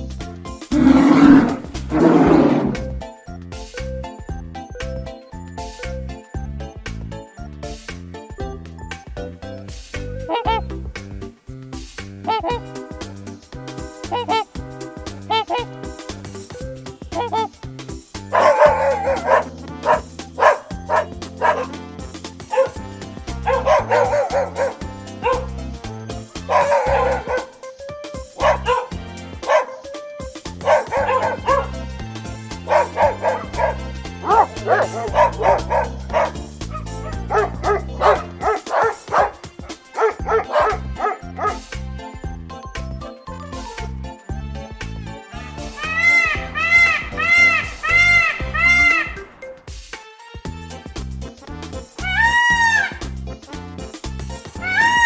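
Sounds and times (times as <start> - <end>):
background music: 0.0 - 55.0
dog barking: 10.2 - 10.7, 12.3 - 12.8, 14.1 - 14.5, 15.3 - 16.0, 17.1 - 17.5, 18.3 - 21.9, 22.5 - 25.6, 26.4 - 27.7, 28.3 - 29.9, 30.5 - 31.9, 32.5 - 41.7.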